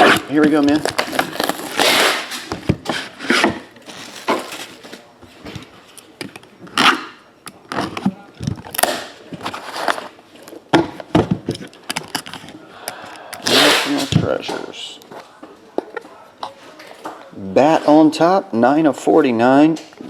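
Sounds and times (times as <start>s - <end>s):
cardboard and plastic rustling: 0.0s - 6.6s, 7.7s - 12.6s.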